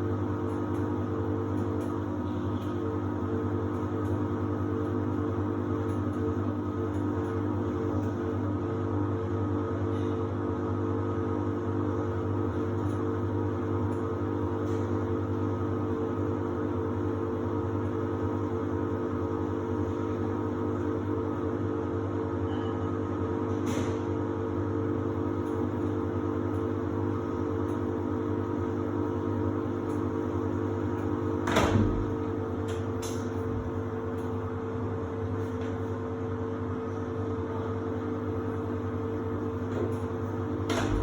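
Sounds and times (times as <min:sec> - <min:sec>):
washer-dryer humming: 0:00.0 - 0:41.0.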